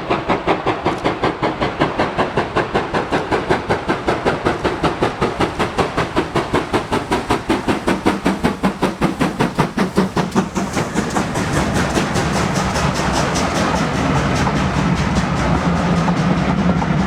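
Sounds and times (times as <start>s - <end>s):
steam locomotive chuffing: 0.0s - 17.0s.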